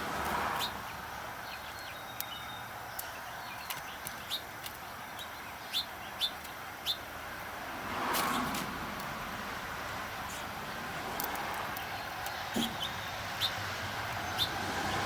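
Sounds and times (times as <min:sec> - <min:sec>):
steady background noise: 0:00.0 - 0:15.0
small birds chirping: 0:00.5 - 0:07.4, 0:09.8 - 0:15.0.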